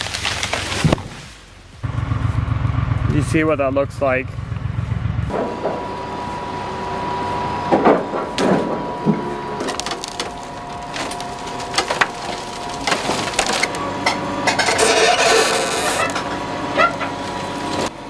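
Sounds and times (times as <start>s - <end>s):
wood cracking and splintering: 0.0s - 1.2s, 7.2s - 17.9s.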